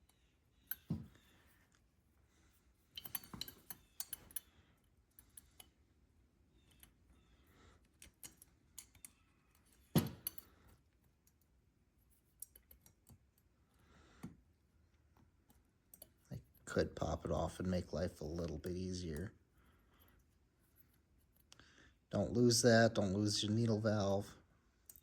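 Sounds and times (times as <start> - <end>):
small metal parts clicking: 0.0 - 1.8, 2.8 - 5.8, 6.6 - 11.5, 12.1 - 13.5, 15.4 - 16.3.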